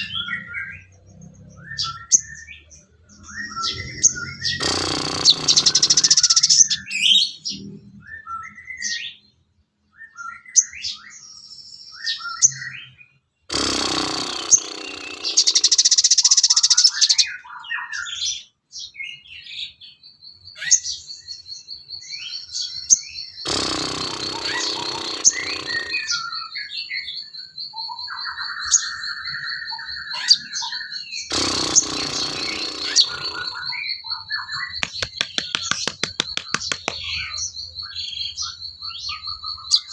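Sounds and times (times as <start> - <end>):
loud harsh bird calls: 0.0 - 9.3, 12.0 - 18.5, 22.0 - 39.9
rapid high bird trill: 3.2 - 7.5, 13.5 - 17.4, 23.2 - 26.9, 31.1 - 39.9.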